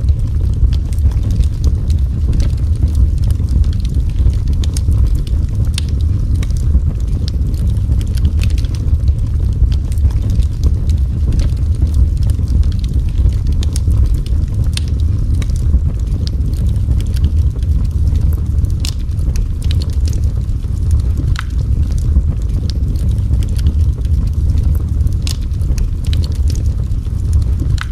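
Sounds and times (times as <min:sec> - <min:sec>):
wood fire crackling and popping: 0:00.0 - 0:27.9.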